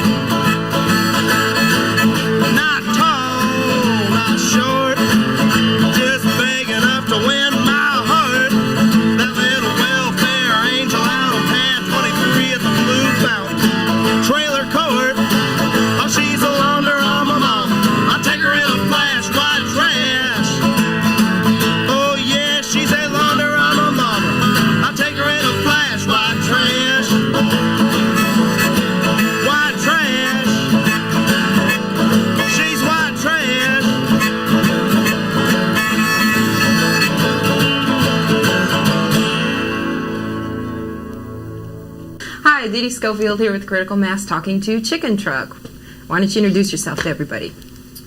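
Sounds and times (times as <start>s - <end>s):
strummed acoustic guitars: 0.0s - 42.5s
person singing: 2.2s - 37.2s.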